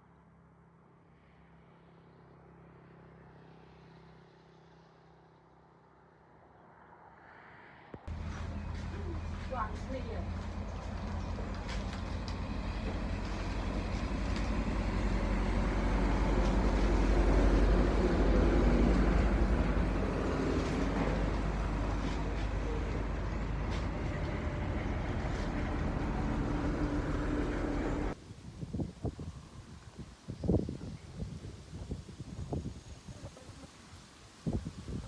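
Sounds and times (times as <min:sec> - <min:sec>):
vehicle engine rumbling: 0:08.1 - 0:28.2.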